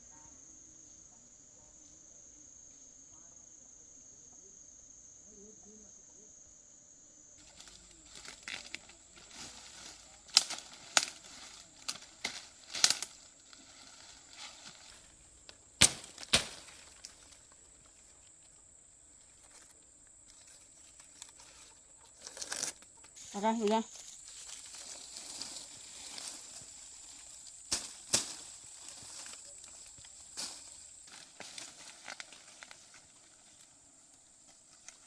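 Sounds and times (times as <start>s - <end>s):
high insect drone: 0.0s - 35.0s
rustles and snaps: 7.4s - 17.6s, 19.4s - 33.7s.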